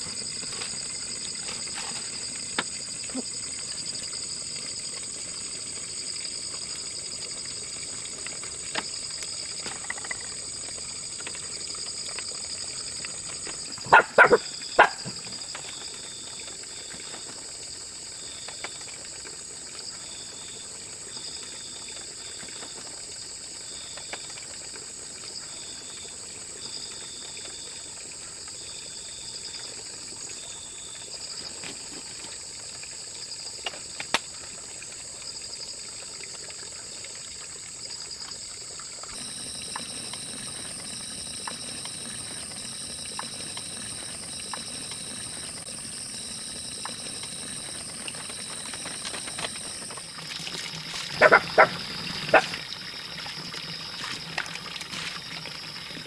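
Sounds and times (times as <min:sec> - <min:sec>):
insects chirring: 0:00.0 - 0:24.3, 0:37.6 - 0:56.0
soft water trickling: 0:00.0 - 0:56.0.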